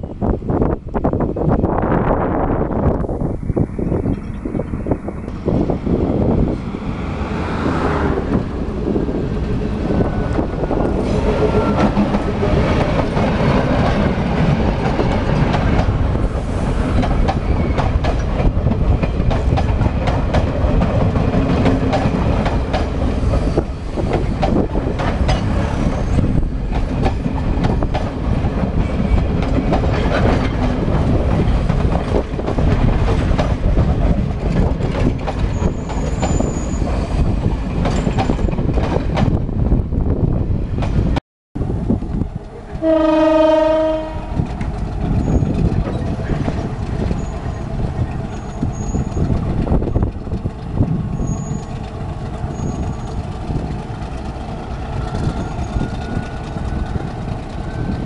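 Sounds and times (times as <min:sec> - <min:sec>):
diesel locomotive passing: 0:00.0 - 0:58.0
passenger coaches rumbling past: 0:00.0 - 0:58.0
wheels clattering over rail joints: 0:10.1 - 0:39.4, 0:44.4 - 0:58.0.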